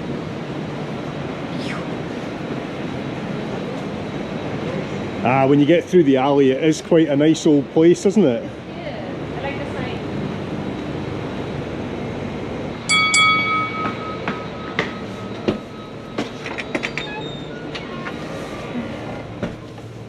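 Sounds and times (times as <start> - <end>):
sharp metallic clang: 12.9 - 17.1.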